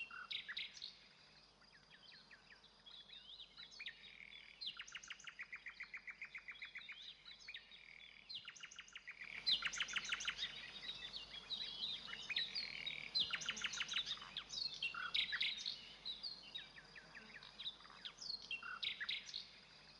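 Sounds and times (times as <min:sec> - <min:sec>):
songbirds singing: 0:00.0 - 0:19.9.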